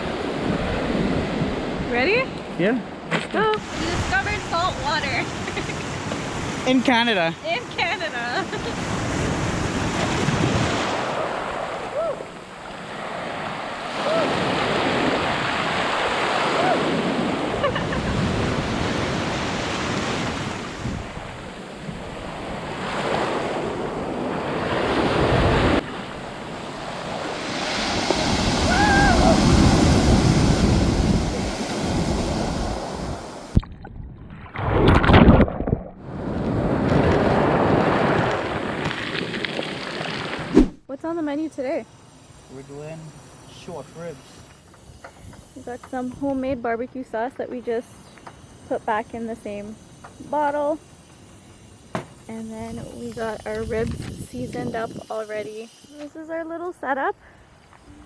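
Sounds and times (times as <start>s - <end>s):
ocean surf washing onto beach: 3.5s - 33.6s, 36.1s - 40.6s
wind buffeting microphone: 3.6s - 6.7s, 7.4s - 12.4s, 14.3s - 39.5s, 52.4s - 55.8s.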